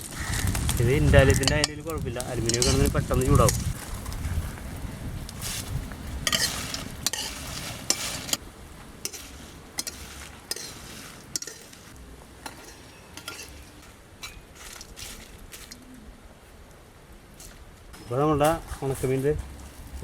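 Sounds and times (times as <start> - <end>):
food scraped around hot pan: 0.0 - 4.4, 5.4 - 8.4, 9.0 - 15.8
light sizzle: 0.0 - 20.0.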